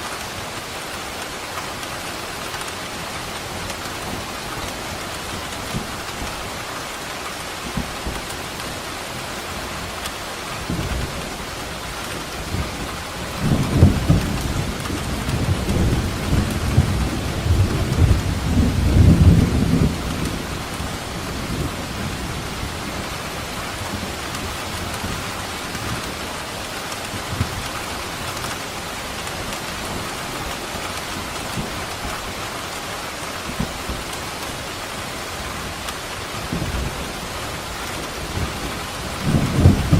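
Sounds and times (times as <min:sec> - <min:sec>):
heavy rain: 0:00.0 - 0:39.9
rolling thunder: 0:13.4 - 0:20.8, 0:38.2 - 0:39.9.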